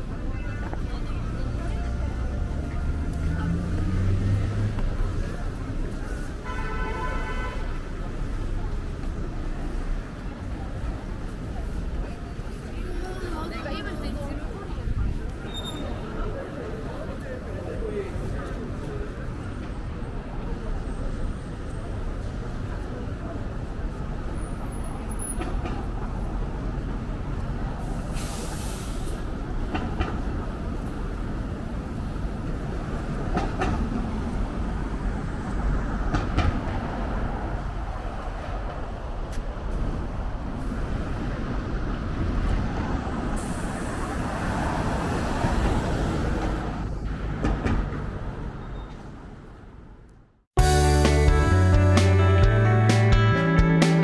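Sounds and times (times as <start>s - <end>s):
subway train rumble: 0.0s - 50.0s
wheel squeal: 15.4s - 16.1s, 48.5s - 49.2s.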